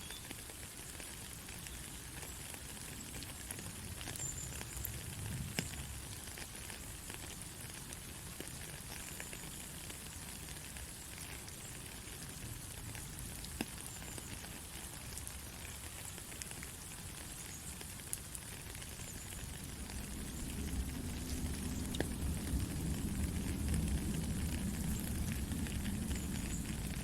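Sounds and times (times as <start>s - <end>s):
raindrop ticks: 0.0s - 27.0s
steady rain hiss: 0.0s - 27.0s
low rumble: 19.4s - 27.0s.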